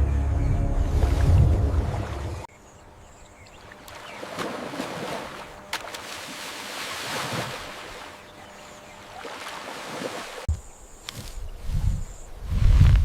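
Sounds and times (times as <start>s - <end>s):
rushing water: 3.6s - 8.3s, 9.0s - 10.5s.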